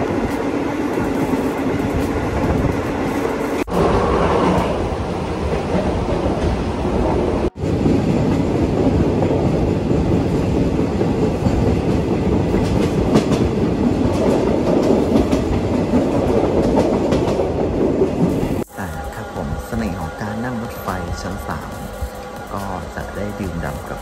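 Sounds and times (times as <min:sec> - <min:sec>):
train wheel and track noise: 0:00.0 - 0:24.0.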